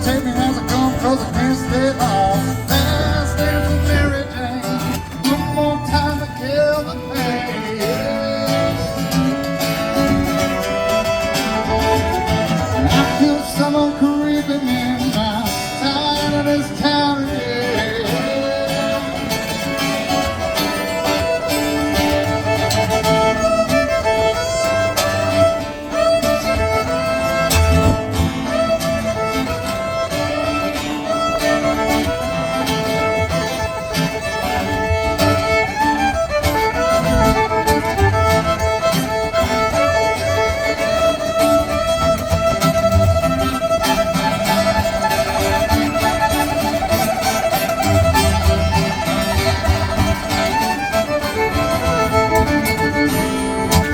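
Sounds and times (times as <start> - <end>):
band backing: 0.0 - 53.9
fiddle playing lead: 0.0 - 53.9
strummed guitar: 0.0 - 53.9.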